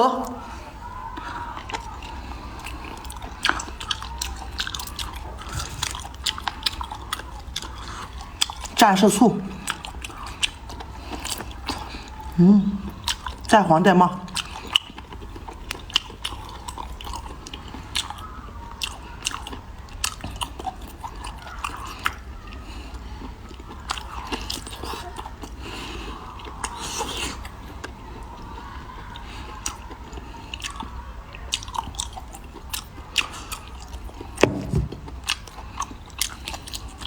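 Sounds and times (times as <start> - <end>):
person chewing seafood: 1.1 - 8.8, 9.4 - 13.5, 14.3 - 37.0
sharp crunches: 34.4 - 35.5.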